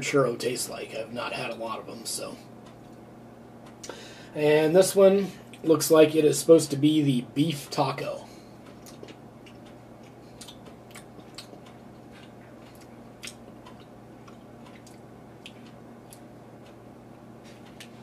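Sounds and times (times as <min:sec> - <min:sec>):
person chewing sticky candy: 0:08.6 - 0:16.8.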